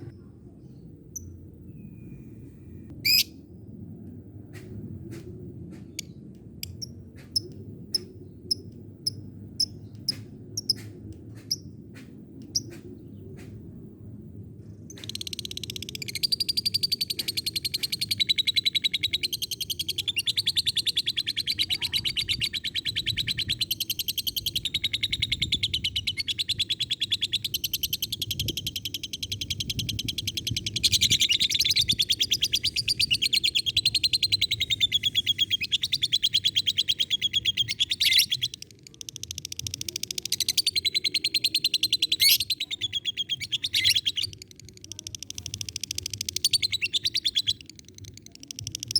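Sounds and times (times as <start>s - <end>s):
lovebird chattering trill: 15.4s - 48.9s.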